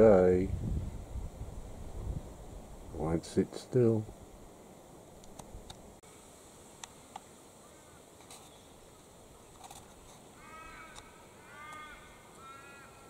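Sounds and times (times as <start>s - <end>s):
small ticks: 5.2s - 5.8s, 6.8s - 7.3s, 9.5s - 12.5s
bird calling faintly: 7.6s - 13.0s.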